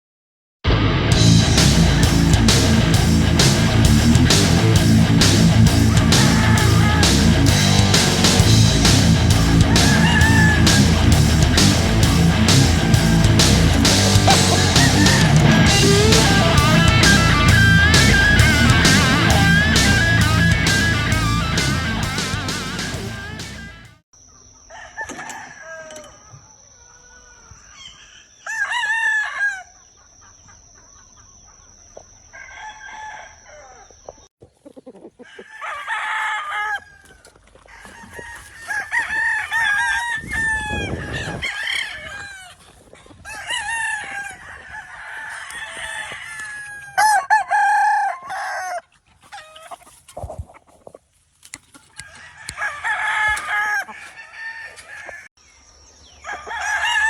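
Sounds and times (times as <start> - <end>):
roosters crowing: 1.2 - 23.9, 24.5 - 30.6, 32.2 - 50.6, 51.6 - 55.4, 56.1 - 57.0
rooster clucking: 1.5 - 23.8, 32.4 - 55.3.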